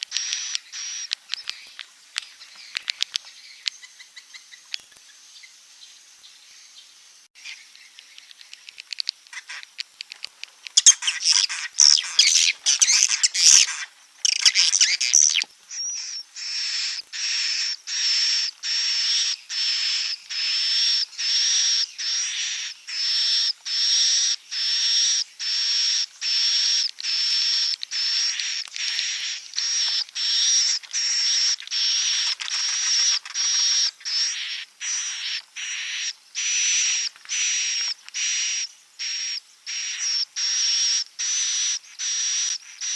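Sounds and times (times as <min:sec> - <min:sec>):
swiftlet twittering: 0:00.0 - 0:01.6, 0:10.8 - 0:42.9.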